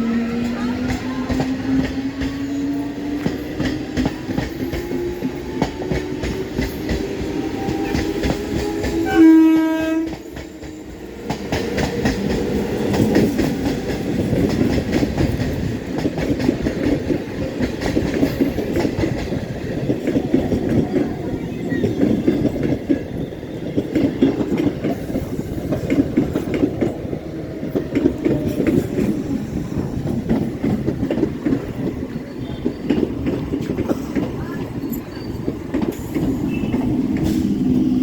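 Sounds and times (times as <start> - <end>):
electric train whine: 0.0 - 33.7, 34.6 - 38.0
wheels clacking over rail joints: 0.4 - 38.0
train horn blast: 8.6 - 10.2.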